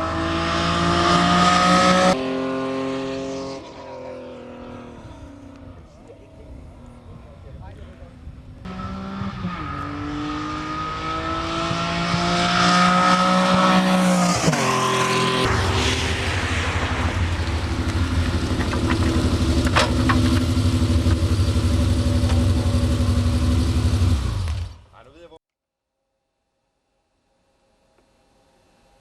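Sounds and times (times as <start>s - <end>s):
car engine running: 15.2s - 24.8s.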